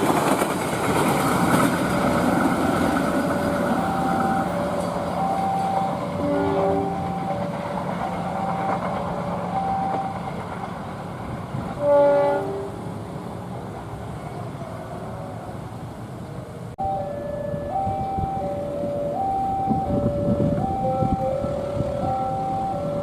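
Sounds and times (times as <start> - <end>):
train passing with rumble: 0.0 - 23.0
two-tone crossing alarm: 3.3 - 10.4, 16.8 - 23.0
locomotive horn: 3.9 - 7.5, 11.8 - 12.8, 17.5 - 22.9.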